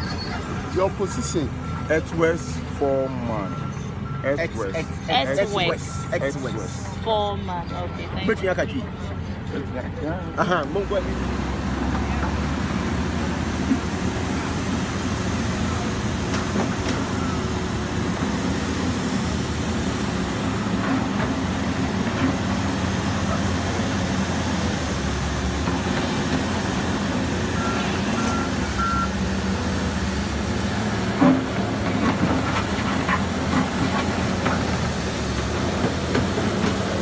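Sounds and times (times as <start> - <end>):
reversing alarm beeps: 0.0 - 9.6, 27.6 - 29.2
diesel machinery running: 0.0 - 37.0.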